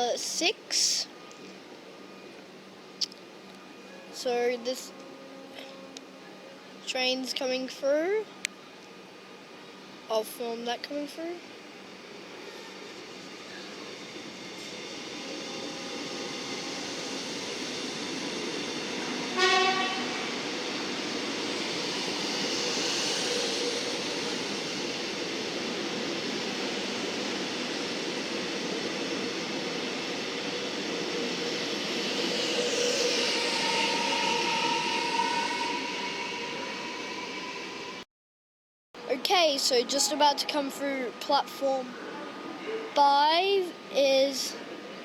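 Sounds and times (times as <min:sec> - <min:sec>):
electric train passing: 0:00.0 - 0:38.0
train horn blast: 0:19.3 - 0:20.4.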